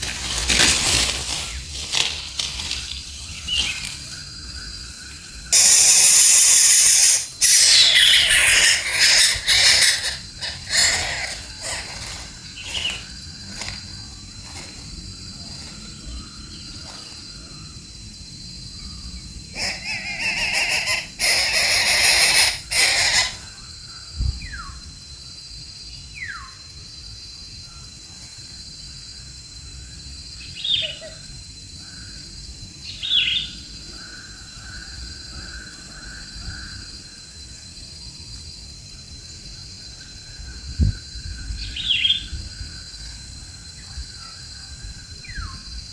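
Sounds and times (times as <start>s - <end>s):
bird hissing screeches: 5.5s - 13.1s, 19.6s - 23.6s.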